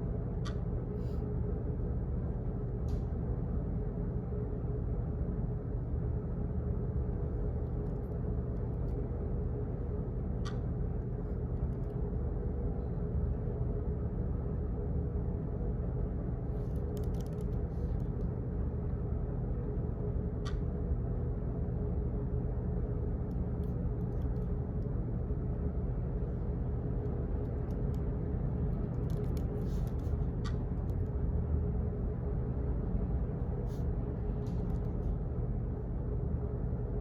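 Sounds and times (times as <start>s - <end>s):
office background hum: 0.0s - 37.0s
faint clicks and taps: 0.4s - 0.7s, 10.4s - 10.7s, 16.7s - 18.3s, 20.4s - 20.7s, 27.0s - 31.2s.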